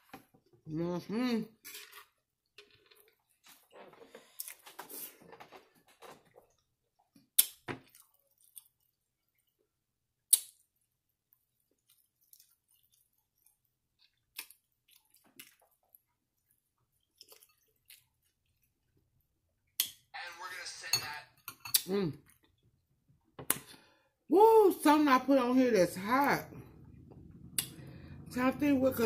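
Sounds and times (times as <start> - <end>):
person chewing food: 1.8 - 20.1, 26.6 - 28.2.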